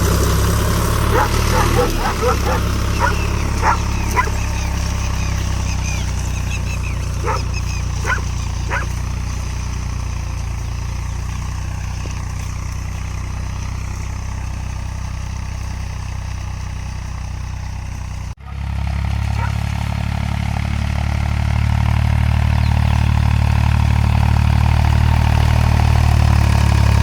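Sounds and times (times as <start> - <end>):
tractor engine running: 0.0 - 27.0
dog barking: 1.1 - 4.5, 7.2 - 9.0, 19.4 - 19.6.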